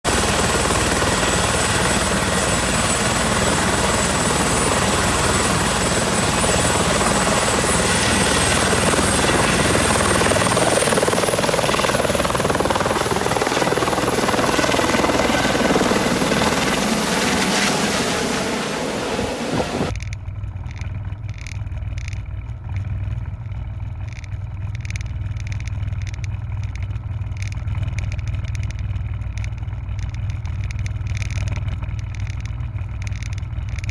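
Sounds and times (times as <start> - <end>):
helicopter rotor and turbine: 0.0 - 19.9.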